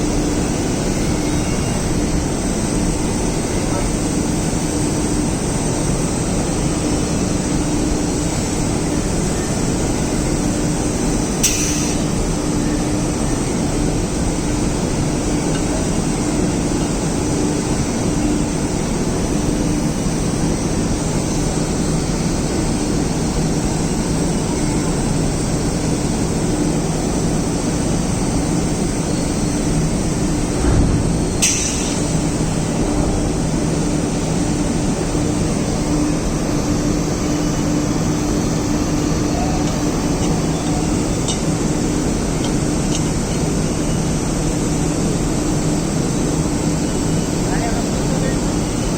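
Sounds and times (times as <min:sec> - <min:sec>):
machinery rumble: 0:00.0 - 0:48.9
short low bump: 0:30.5 - 0:33.6.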